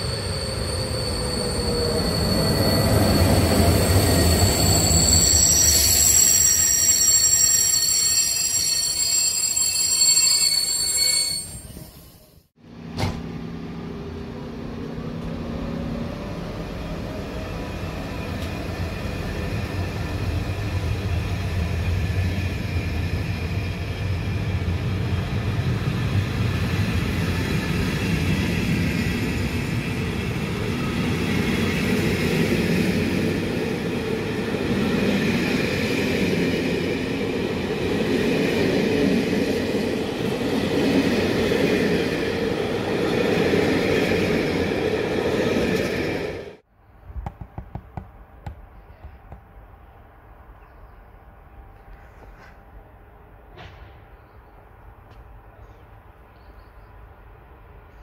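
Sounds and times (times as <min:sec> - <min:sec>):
train wheels squealing: 0:00.0 - 0:12.5
train rumbling by: 0:00.0 - 0:46.7.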